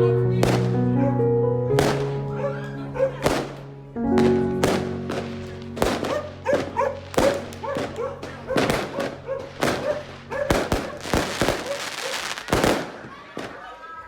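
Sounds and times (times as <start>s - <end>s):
fireworks banging: 0.4s - 0.9s, 1.7s - 2.4s, 3.2s - 13.8s
dog barking: 2.4s - 3.3s, 6.1s - 12.3s.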